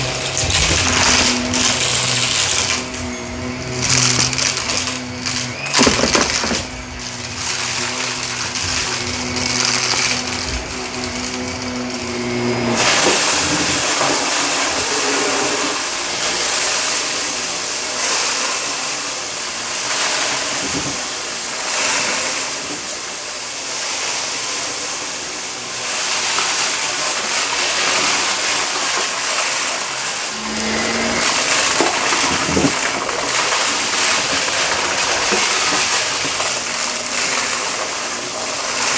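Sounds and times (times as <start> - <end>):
debris clicks: 0.0 - 16.4, 26.4 - 38.9
vacuum cleaner running over carpet: 0.0 - 38.9.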